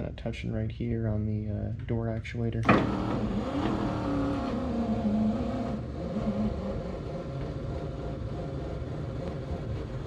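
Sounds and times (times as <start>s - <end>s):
low steady hum: 0.0s - 10.0s
power window motor whine: 2.6s - 9.6s.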